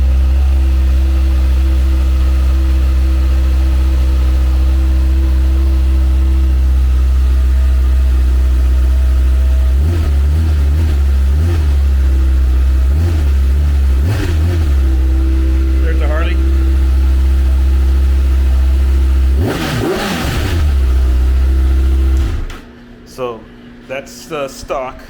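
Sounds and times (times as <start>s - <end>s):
uneven lumpy engine beat: 0.0s - 22.4s
motorcycle engine idling: 0.0s - 22.5s.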